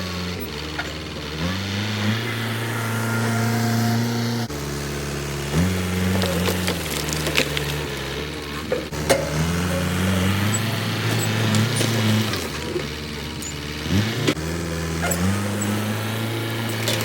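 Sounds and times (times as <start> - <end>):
machine engine under load: 0.0 - 17.0
wood cracking and snapping: 6.0 - 8.3.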